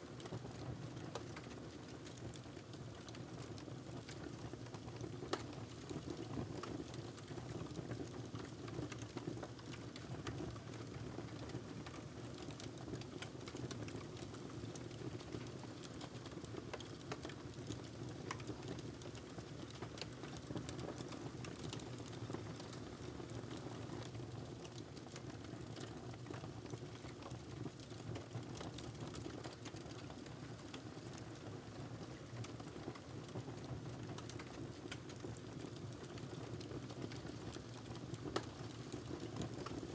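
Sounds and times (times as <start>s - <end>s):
fire burning with crackles: 0.1s - 39.9s.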